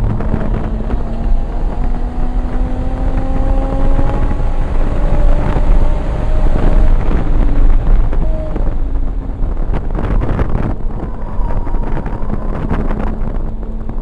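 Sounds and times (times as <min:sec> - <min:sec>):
car engine running at speed: 0:00.0 - 0:14.0
wind buffeting on microphone: 0:00.0 - 0:14.0.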